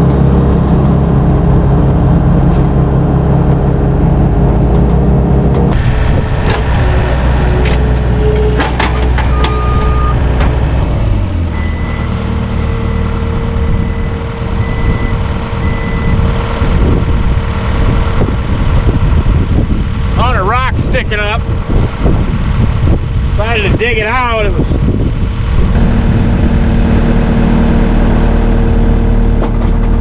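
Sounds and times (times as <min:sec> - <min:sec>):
tractor engine running: 0:00.0 - 0:30.0
short high beeps: 0:09.3 - 0:10.2.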